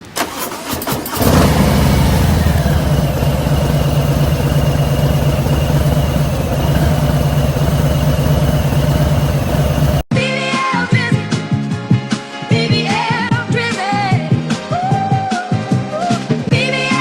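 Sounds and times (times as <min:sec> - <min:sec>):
motorcycle engine running: 0:01.1 - 0:10.1.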